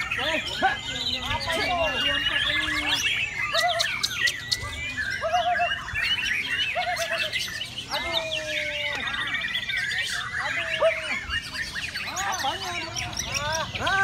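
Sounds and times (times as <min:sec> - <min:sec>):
rapid high bird trill: 0:00.0 - 0:08.2
many songbirds singing: 0:00.0 - 0:14.0.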